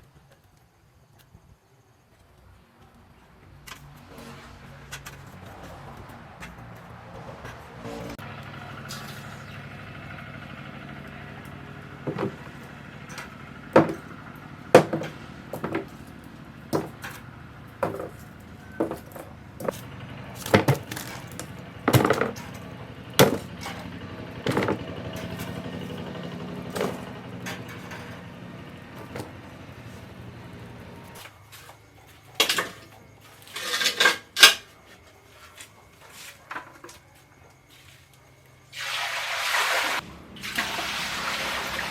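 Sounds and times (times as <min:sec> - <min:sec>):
clattering knocks: 0:12.0 - 0:16.0, 0:16.7 - 0:29.8.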